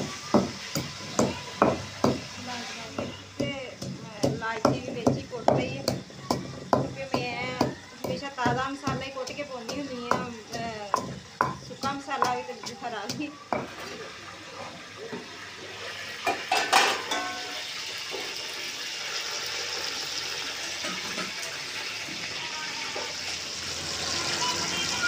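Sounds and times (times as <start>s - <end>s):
onions sizzling in oil: 0.0s - 25.0s
pestle knocking stone mortar: 0.3s - 2.2s, 2.9s - 13.8s
metal spoon clattering against pot: 16.2s - 17.5s.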